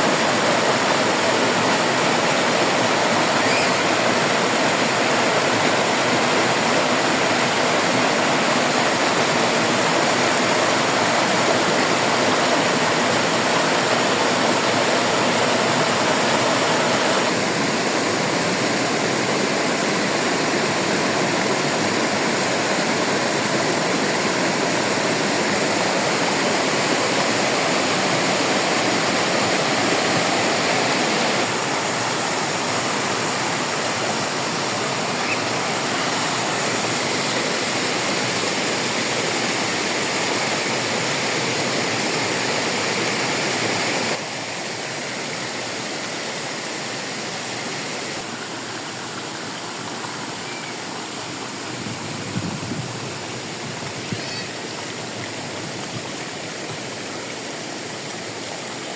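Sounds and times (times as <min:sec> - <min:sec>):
water rushing over waterfall: 0:00.0 - 0:58.9.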